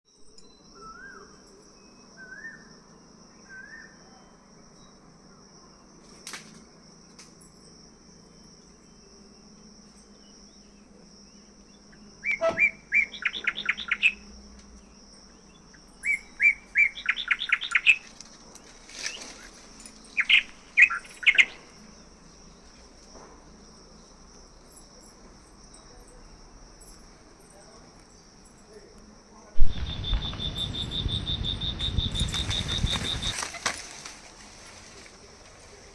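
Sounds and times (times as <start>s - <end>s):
rapid bird chirps: 12.3s - 14.2s, 29.6s - 34.0s
high-pitched insect drone: 29.6s - 35.1s
bird rising calls: 29.6s - 35.2s.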